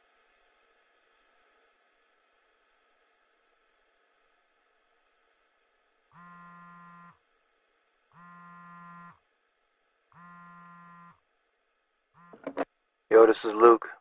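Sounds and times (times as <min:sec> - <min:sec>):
faint phone ringing: 0:06.2 - 0:07.2, 0:08.2 - 0:09.2, 0:10.2 - 0:11.2, 0:12.2 - 0:12.7.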